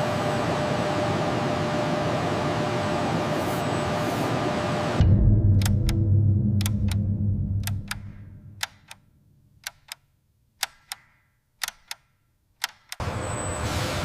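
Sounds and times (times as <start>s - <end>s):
loud steady rumbling: 4.9s - 8.6s
clock tick-tock clicks: 5.4s - 9.0s, 9.6s - 13.0s.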